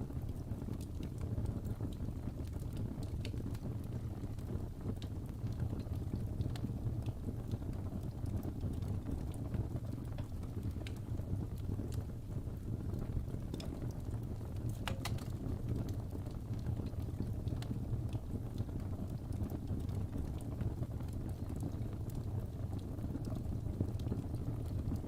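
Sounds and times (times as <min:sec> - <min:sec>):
fire rumbling: 0:00.0 - 0:25.0
logs crackling and popping: 0:00.0 - 0:25.0.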